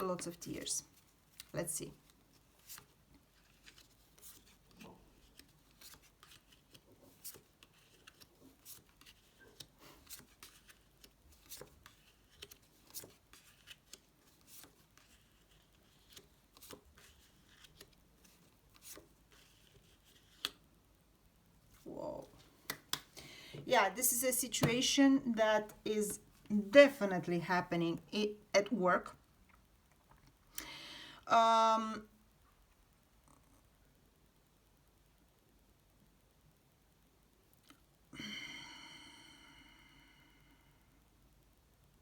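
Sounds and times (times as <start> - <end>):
playing cards shuffling: 1.3 - 20.6.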